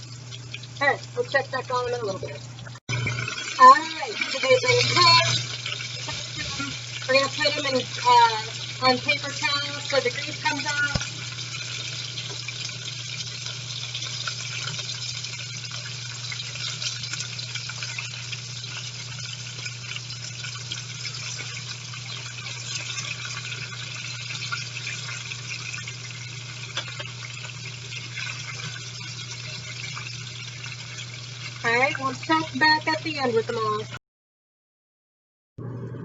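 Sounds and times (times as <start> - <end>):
low steady hum: 0.0 - 14.1
oil sizzling with crackles: 0.0 - 34.0.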